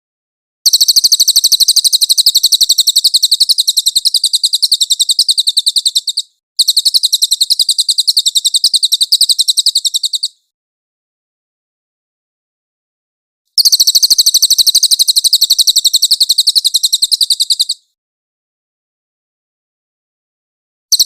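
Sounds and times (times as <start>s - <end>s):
bird trilling: 0.7s - 10.4s, 13.6s - 17.8s.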